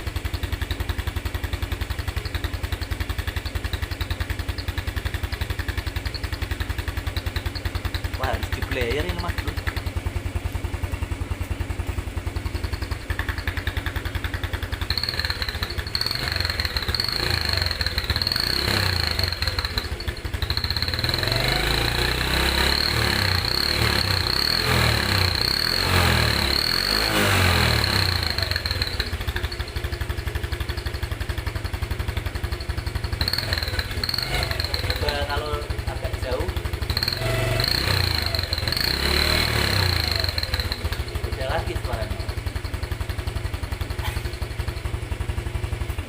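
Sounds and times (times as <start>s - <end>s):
motorcycle idling and revving: 0.0s - 46.0s.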